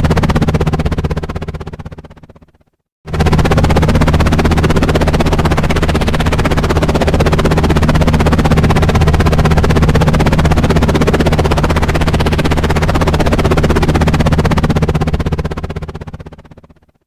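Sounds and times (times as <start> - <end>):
helicopter rotor beating: 0.0 - 16.9.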